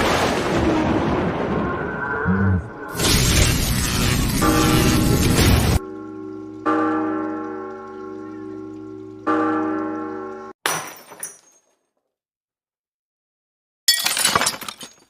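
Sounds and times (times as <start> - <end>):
loud noisy burst: 2.8 - 5.8.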